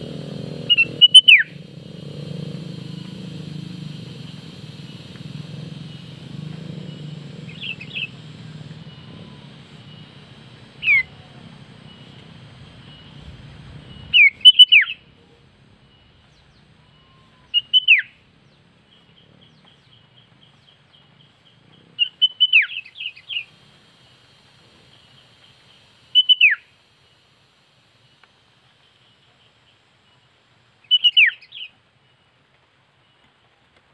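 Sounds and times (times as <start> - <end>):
bird calling sharp high notes: 0.0 - 15.1
low background rumble: 0.0 - 21.8.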